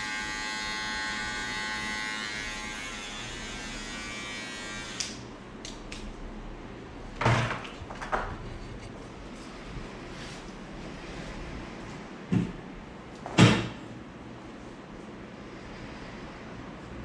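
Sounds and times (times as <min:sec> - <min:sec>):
electric hair clippers buzzing: 0:00.0 - 0:05.2.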